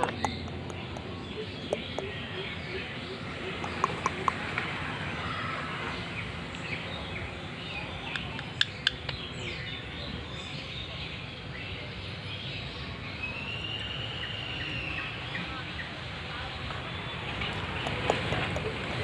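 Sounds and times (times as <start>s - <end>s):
parrots chirping: 0.0s - 4.7s, 17.2s - 19.0s.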